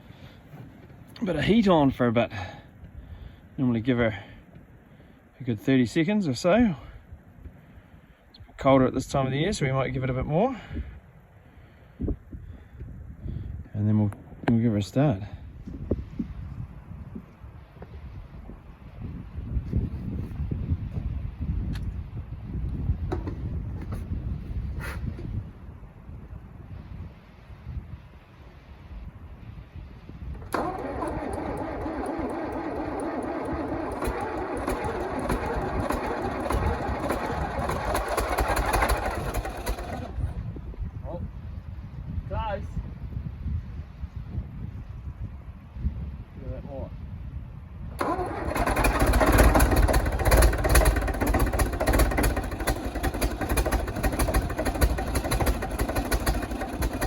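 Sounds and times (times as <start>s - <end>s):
starter motor cranking: 23.1s - 24.0s, 30.3s - 40.4s, 48.0s - 57.0s
diesel engine knocking: 30.4s - 40.2s, 48.0s - 57.0s.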